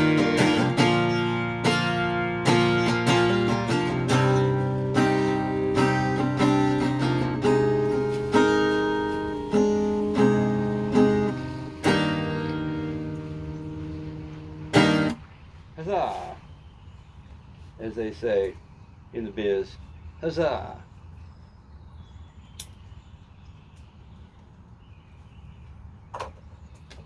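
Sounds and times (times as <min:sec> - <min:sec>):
acoustic guitar strumming chords: 0:00.0 - 0:15.2.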